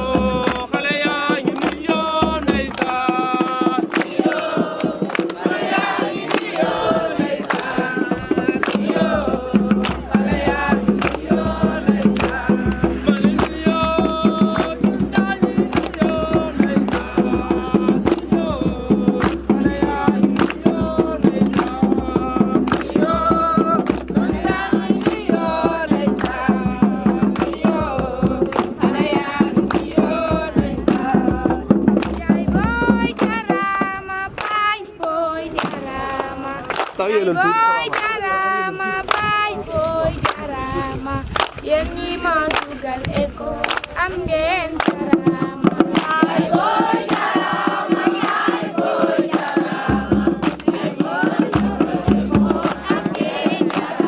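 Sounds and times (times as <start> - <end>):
percussive beat: 0.0 - 37.0, 39.0 - 54.0
group of voices singing: 0.0 - 54.0.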